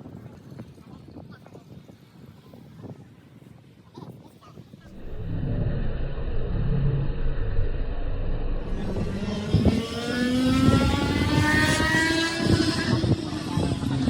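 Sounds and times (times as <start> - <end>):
low rumble: 4.9 - 11.0
car engine accelerating: 4.9 - 14.0.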